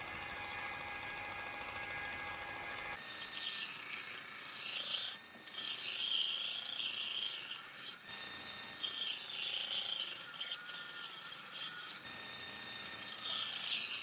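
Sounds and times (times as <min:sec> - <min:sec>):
rasping rubbing on metal blade: 0:03.2 - 0:08.0, 0:08.7 - 0:12.0, 0:13.2 - 0:14.0.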